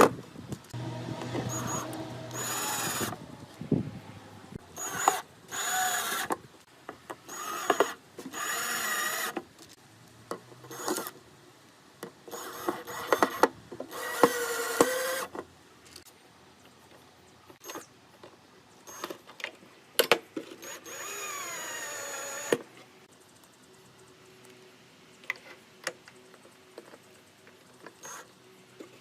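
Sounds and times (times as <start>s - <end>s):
power drill motor whine: 0.8s - 3.5s, 4.8s - 6.3s, 7.3s - 9.4s, 10.7s - 11.1s, 12.3s - 15.3s, 20.6s - 22.6s.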